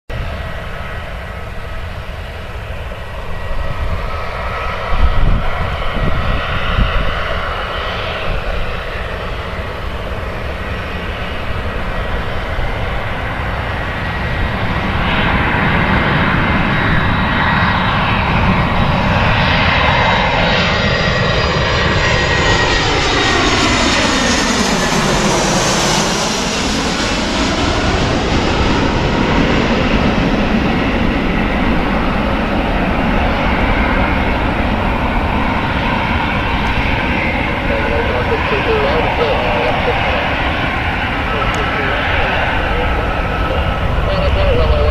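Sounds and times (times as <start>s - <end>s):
jet airliner engine roar: 0.1s - 44.9s
sweeping jet whine: 0.1s - 44.9s
low buffets: 23.1s - 44.9s.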